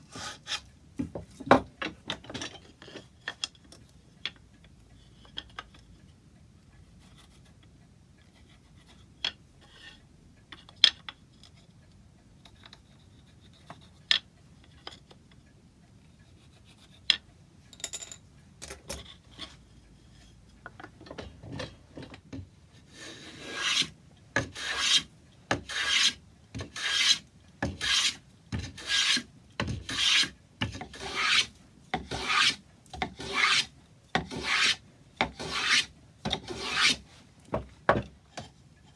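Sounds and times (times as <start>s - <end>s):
hand filing wood: 22.8s - 37.1s.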